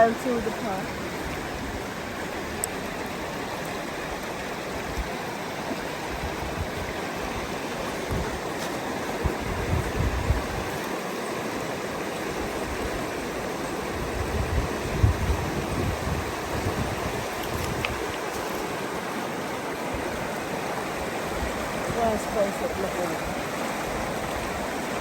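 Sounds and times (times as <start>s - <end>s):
flowing river rushing: 0.0s - 25.0s
wind buffeting microphone: 5.8s - 11.0s, 12.3s - 19.0s.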